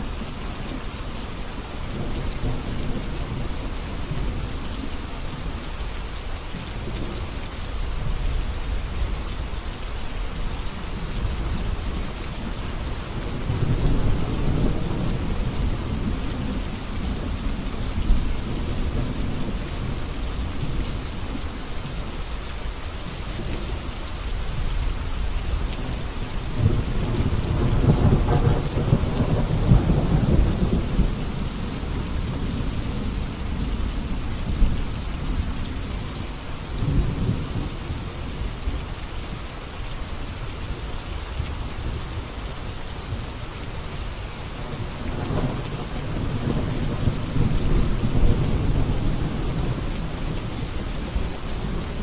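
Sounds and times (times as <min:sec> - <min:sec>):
steady rain: 0:00.0 - 0:52.0
thunder rolling: 0:26.6 - 0:32.6, 0:45.0 - 0:52.0.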